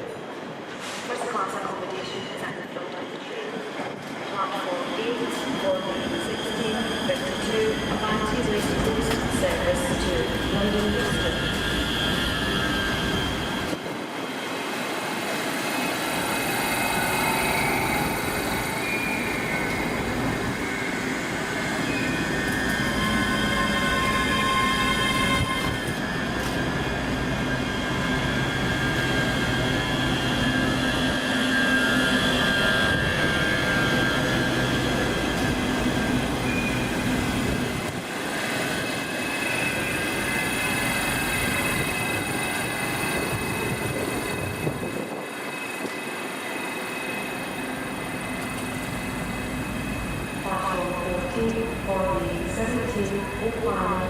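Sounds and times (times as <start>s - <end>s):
train rumble: 0.0s - 54.0s
train wheels squealing: 5.2s - 13.8s, 15.4s - 37.4s, 38.3s - 50.4s.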